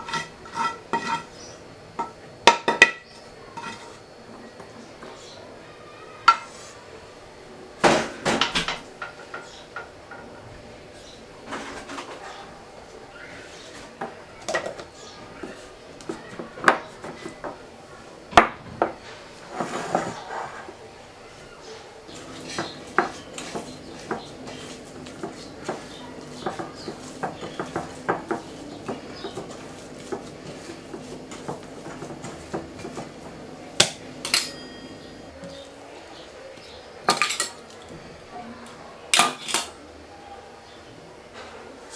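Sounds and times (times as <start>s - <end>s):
scraping and rustling: 0.0s - 2.2s, 3.0s - 4.2s, 11.4s - 12.6s, 18.6s - 35.8s
dishes and utensils clinking: 0.0s - 4.0s, 6.2s - 6.6s, 21.6s - 35.7s, 36.6s - 37.9s, 39.1s - 39.8s
kitchenware knocking: 2.0s - 3.9s, 22.1s - 30.3s, 30.9s - 35.3s.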